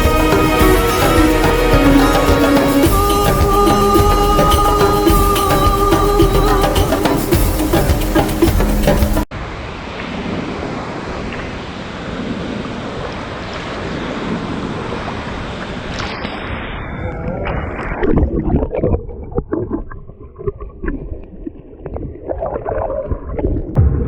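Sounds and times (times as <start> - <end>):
rush of falling water: 0.0 - 17.1
low rumbles: 23.8 - 24.0.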